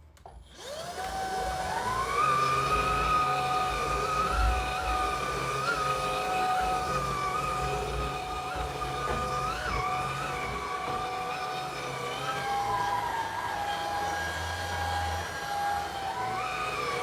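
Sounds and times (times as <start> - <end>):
vacuum cleaner motor whine: 0.2 - 17.0.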